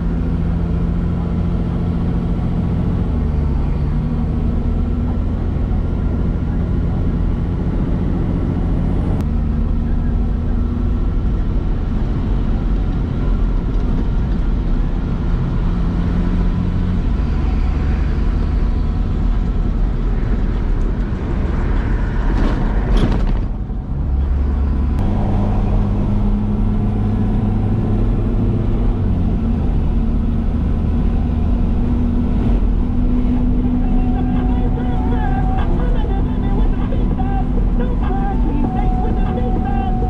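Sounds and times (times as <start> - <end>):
truck engine changing gear: 12.7 - 40.0.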